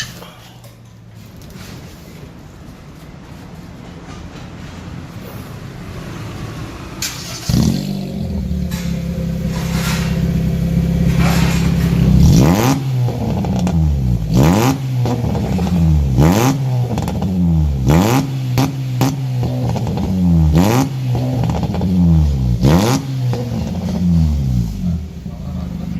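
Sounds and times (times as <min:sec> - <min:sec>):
car engine revving: 0:05.5 - 0:25.9.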